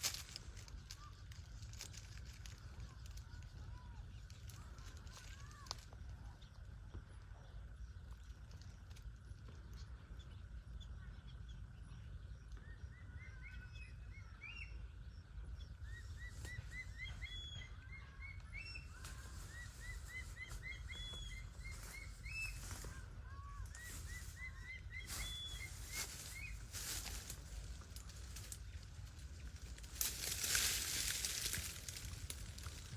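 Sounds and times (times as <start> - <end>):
bird chirping: 9.5 - 32.9.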